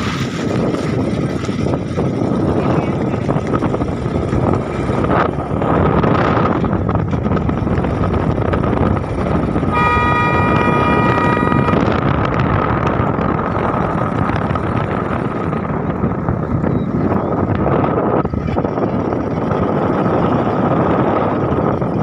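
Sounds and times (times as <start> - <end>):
vehicle engine and road noise: 0.0 - 22.0
wind on microphone: 0.0 - 22.0
vehicle horn: 9.7 - 12.1.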